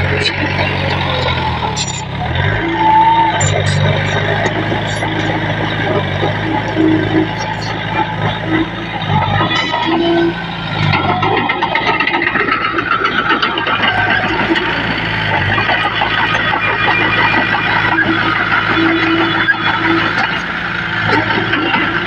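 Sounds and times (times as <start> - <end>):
bulldozer diesel engine: 0.0 - 22.0
rattling clatter: 3.4 - 20.4.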